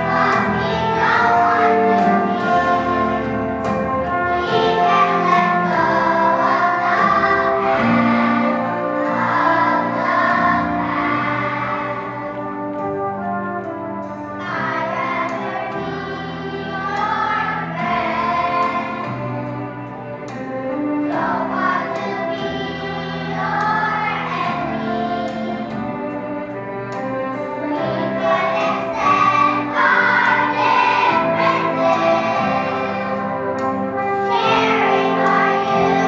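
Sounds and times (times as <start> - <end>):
children's choir singing: 0.0 - 36.0.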